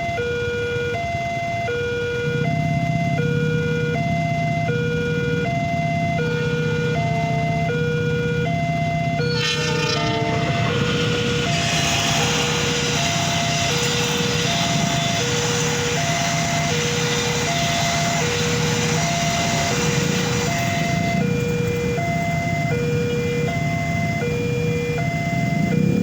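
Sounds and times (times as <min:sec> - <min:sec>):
level crossing two-tone alarm: 0:00.0 - 0:26.0
loud rumbling hiss: 0:05.6 - 0:24.0.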